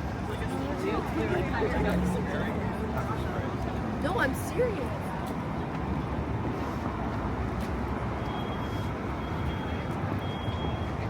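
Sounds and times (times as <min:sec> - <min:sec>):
city traffic rumble: 0:00.0 - 0:11.0
vehicle reversing alarm beeping: 0:08.2 - 0:11.0.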